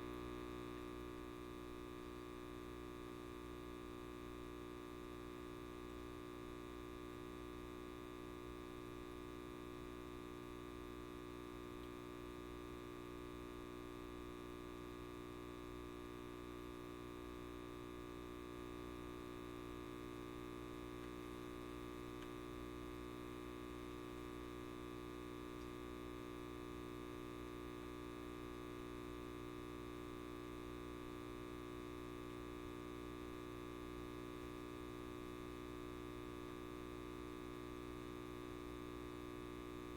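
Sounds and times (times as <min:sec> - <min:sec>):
light bulb mains hum: 0:00.0 - 0:39.9.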